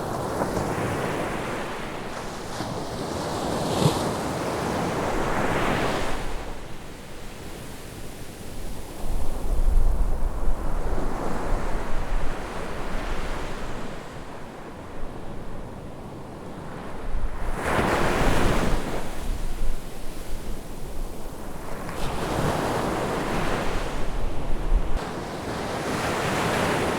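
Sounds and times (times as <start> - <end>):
sea waves breaking on a beach: 0.0 - 26.9
wind buffeting the microphone: 8.4 - 15.8, 16.7 - 26.9.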